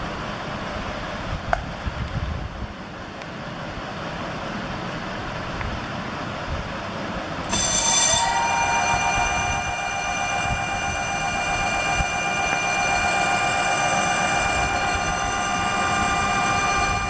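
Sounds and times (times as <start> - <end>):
wind: 0.0 - 17.0
electric motor whine: 7.5 - 17.0.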